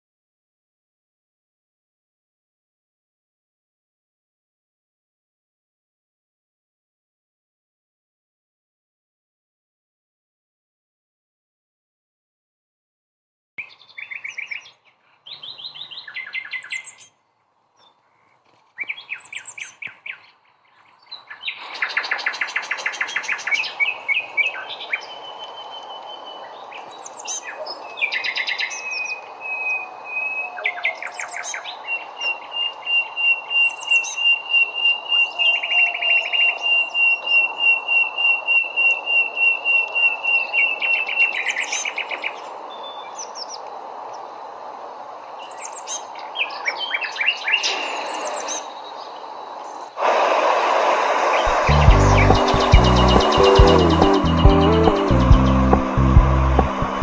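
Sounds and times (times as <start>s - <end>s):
birds chirping and trilling: 13.6s - 17.2s, 17.8s - 44.4s, 45.4s - 50.0s, 51.2s - 57.0s
outdoor background hiss: 13.6s - 35.5s, 36.5s - 57.0s.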